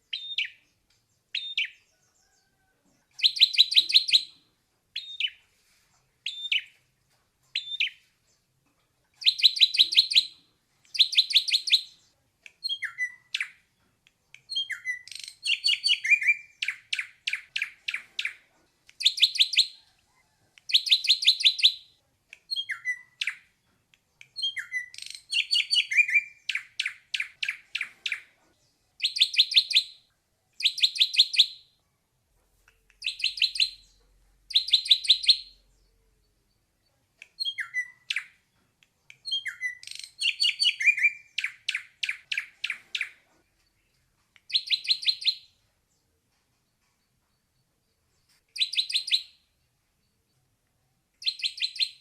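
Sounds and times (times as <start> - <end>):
bird singing high notes and whistles: 14.5 - 18.4, 24.4 - 28.2, 37.4 - 38.3, 39.2 - 43.1, 44.5 - 45.5, 48.6 - 49.4, 51.2 - 52.0.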